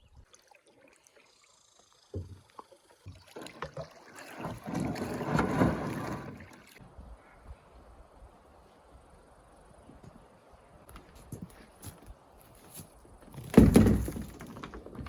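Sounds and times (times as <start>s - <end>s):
hollow knocks against canoe hull: 2.1s - 3.8s.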